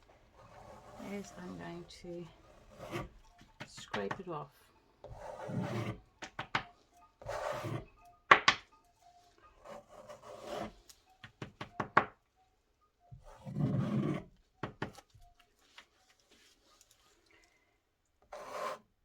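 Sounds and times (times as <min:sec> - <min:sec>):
paint scraping on canvas: 0:00.4 - 0:04.1, 0:05.1 - 0:06.0, 0:07.2 - 0:07.9, 0:09.6 - 0:10.8, 0:18.3 - 0:18.8
sharp clicks and taps: 0:06.2 - 0:07.0, 0:11.2 - 0:12.2.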